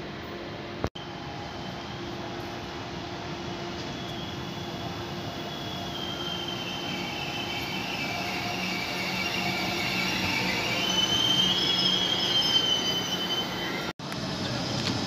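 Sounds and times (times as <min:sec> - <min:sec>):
train rolling rumble: 0:00.1 - 0:15.0
wheel and brake squeal: 0:03.7 - 0:13.9.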